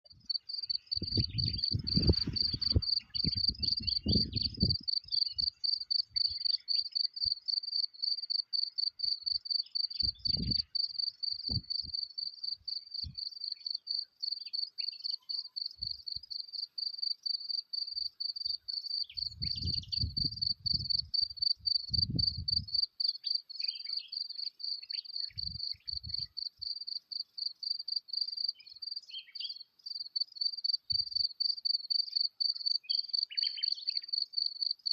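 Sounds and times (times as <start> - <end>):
insects trilling: 0.2 - 19.7.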